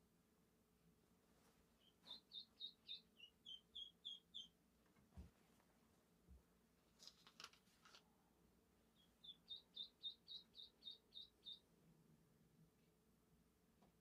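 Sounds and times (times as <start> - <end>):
bird chirping: 1.8 - 4.6, 8.9 - 11.8
faint clicks and rustles: 4.8 - 8.1.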